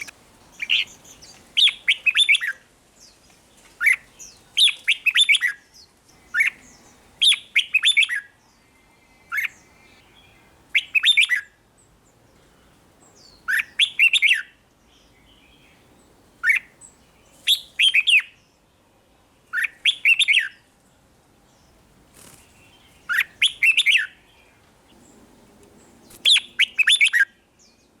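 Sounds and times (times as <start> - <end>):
bird singing warbled whistles: 1.6 - 2.6, 4.6 - 5.6, 6.3 - 6.6, 7.2 - 8.3, 10.7 - 11.5, 13.2 - 14.6, 16.4 - 16.7, 17.5 - 18.4, 19.5 - 20.6, 23.1 - 24.2, 26.1 - 27.4.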